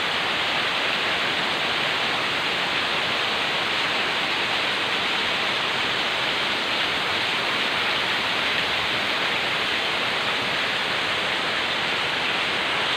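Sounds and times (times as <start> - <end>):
heavy rain downpour: 0.0 - 12.9.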